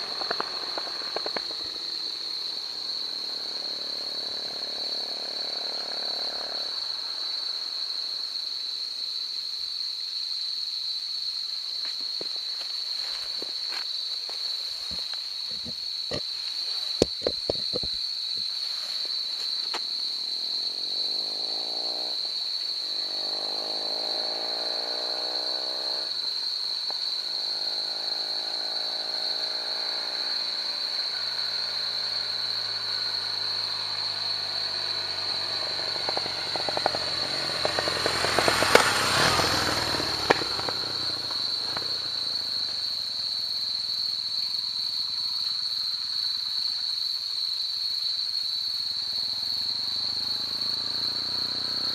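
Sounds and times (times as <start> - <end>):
motorcycle passing by: 0.0 - 8.3, 19.9 - 44.3, 48.9 - 51.9.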